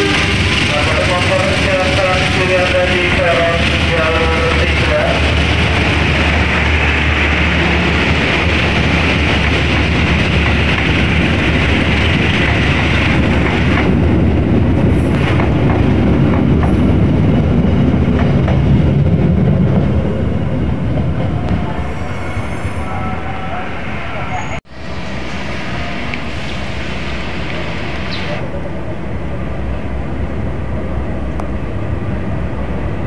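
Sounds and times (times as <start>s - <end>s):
train wheels clattering on rails: 0.0s - 19.8s.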